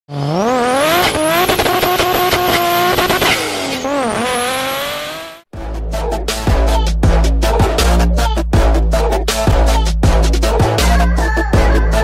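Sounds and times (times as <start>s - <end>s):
race car engine revving: 0.1s - 5.5s.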